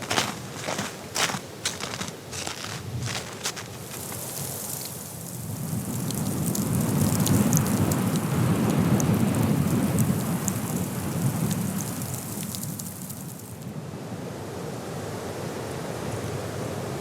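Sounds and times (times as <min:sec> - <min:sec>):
blizzard wind gusting: 0:00.0 - 0:11.6.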